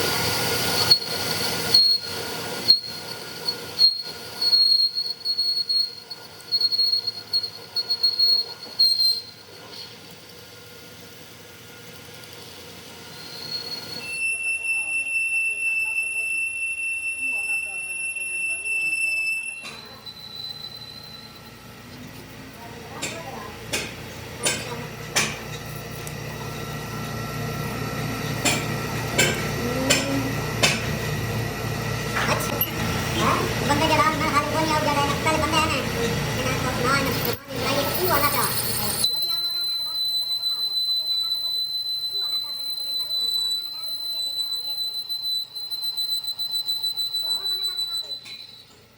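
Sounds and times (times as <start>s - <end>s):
machine running: 0.0s - 14.1s, 19.6s - 48.8s
metal-on-metal squeal: 0.6s - 10.0s, 13.1s - 14.9s, 19.1s - 21.6s, 37.6s - 48.8s
hammer striking metal: 23.0s - 25.7s, 28.4s - 31.0s.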